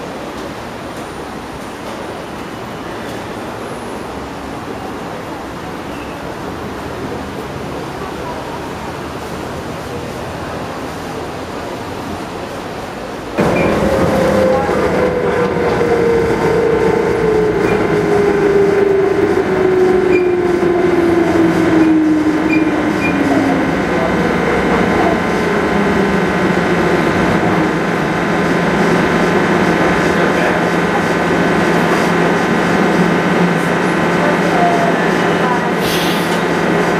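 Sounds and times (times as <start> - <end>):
train running hum: 0.0 - 36.9
train motor whine falling in pitch: 13.4 - 24.8.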